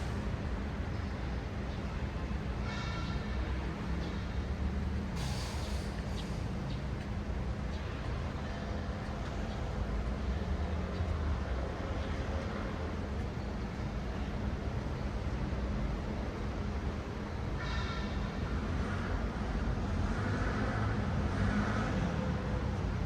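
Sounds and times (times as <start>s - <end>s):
traffic rumble: 0.0s - 23.0s
short sharp hiss: 5.2s - 6.4s.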